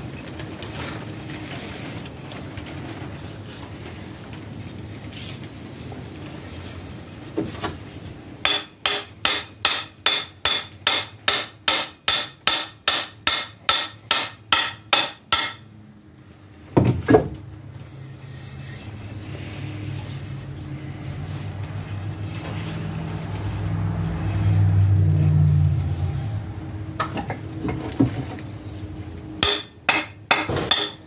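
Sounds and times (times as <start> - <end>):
hammer striking metal: 8.4 - 15.6, 29.4 - 31.0.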